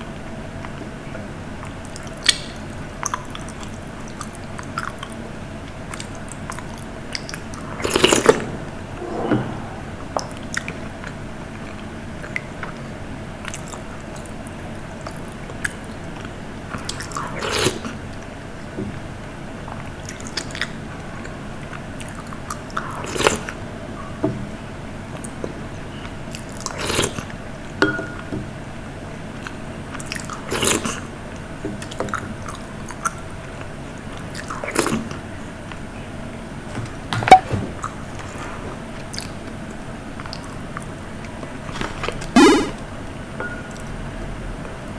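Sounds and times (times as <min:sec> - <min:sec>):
wet mouth clicks: 0:42.3 - 0:42.8.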